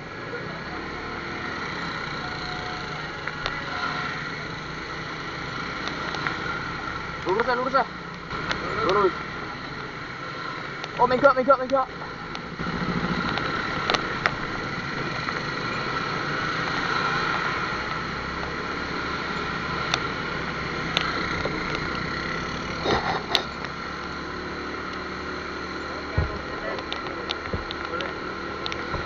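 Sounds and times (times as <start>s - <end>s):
motorcycle engine running: 0.4s - 29.0s.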